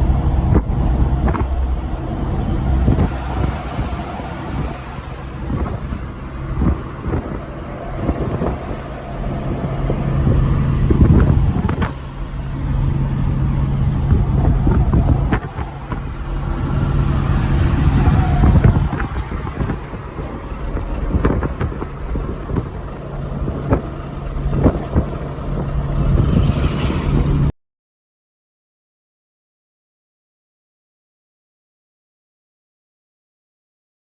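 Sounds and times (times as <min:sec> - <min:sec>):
truck engine droning: 0:00.0 - 0:27.5
sharp knocks and rattles: 0:00.9 - 0:27.5.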